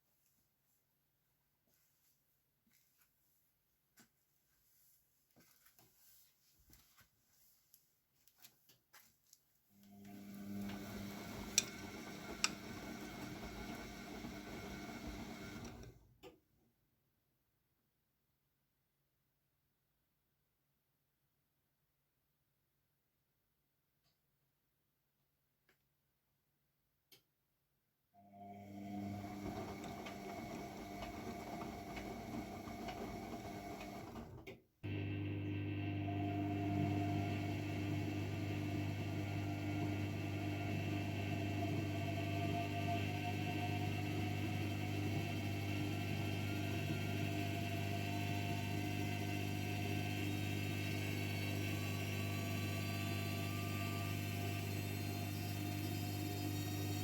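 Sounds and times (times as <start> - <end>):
washing machine motor hum: 10.0 - 16.1, 28.3 - 57.0.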